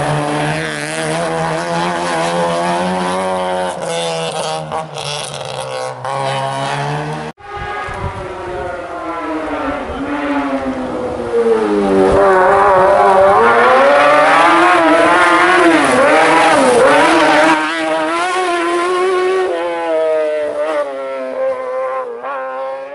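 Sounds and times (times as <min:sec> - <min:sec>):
car engine at high revs: 0:00.0 - 0:22.9.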